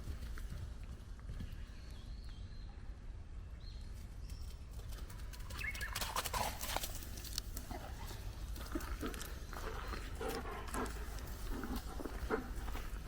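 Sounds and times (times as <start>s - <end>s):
footsteps on forest floor: 6.8s - 13.0s.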